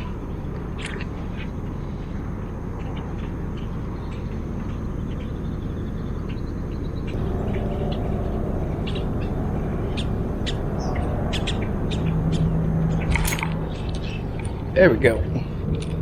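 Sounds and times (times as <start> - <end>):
low outdoor rumble: 0.0 - 16.0
low steady hum: 0.0 - 16.0
birds chirping: 1.4 - 16.0.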